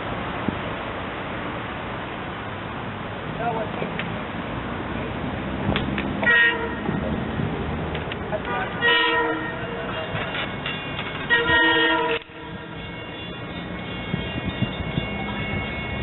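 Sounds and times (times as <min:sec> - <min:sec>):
low engine rumble: 0:00.0 - 0:16.0
train horn blasts: 0:06.2 - 0:07.0, 0:08.5 - 0:10.3, 0:11.1 - 0:13.3.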